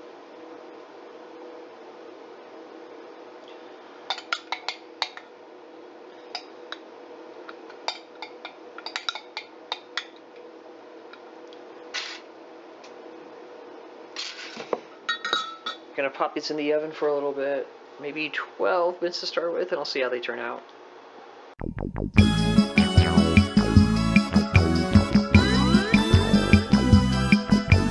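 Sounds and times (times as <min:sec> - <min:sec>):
kitchenware clinking and knocking: 0:15.1 - 0:15.8.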